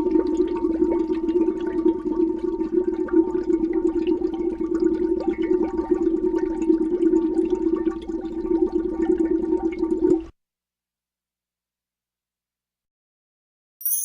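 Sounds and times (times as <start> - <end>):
air bubbles gurgling in water: 0.0 - 10.3.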